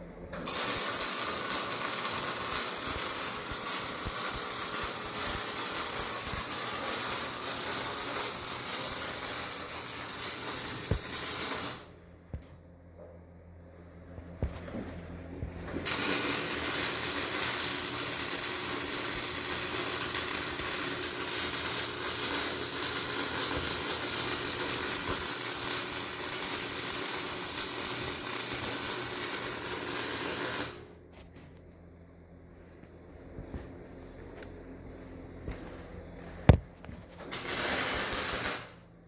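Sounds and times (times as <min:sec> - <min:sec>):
arc welding hiss: 0:00.4 - 0:11.9, 0:15.8 - 0:30.8, 0:37.2 - 0:38.8.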